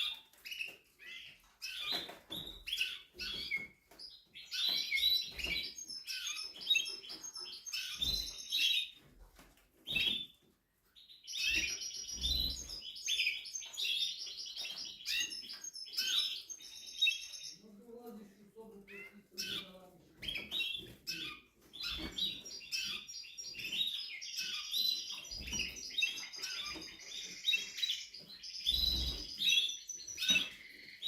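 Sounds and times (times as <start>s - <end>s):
canary singing trills: 0.0s - 9.1s, 11.0s - 17.8s, 18.8s - 31.0s.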